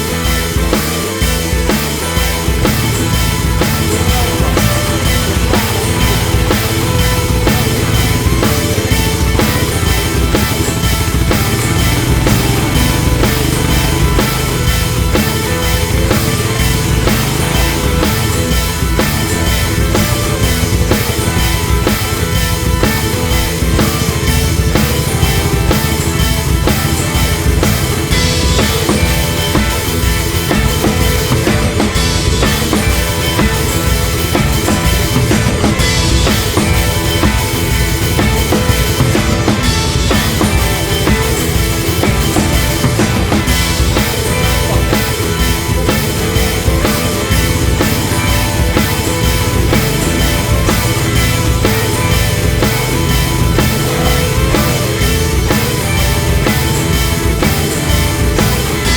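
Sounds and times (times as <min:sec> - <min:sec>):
guitars: 0:00.0 - 0:58.9
rock music with drum beat: 0:00.0 - 0:58.9.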